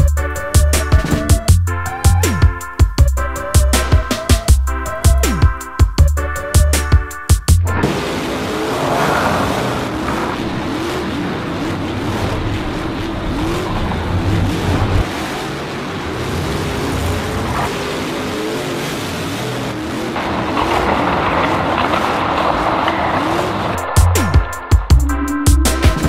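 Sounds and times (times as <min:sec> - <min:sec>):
race car engine revving: 0:07.6 - 0:26.0.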